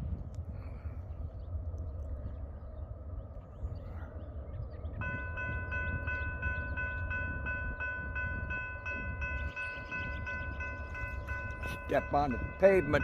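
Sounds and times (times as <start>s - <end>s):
low rumble: 0.0s - 13.0s
crossing bell dinging: 5.0s - 13.0s.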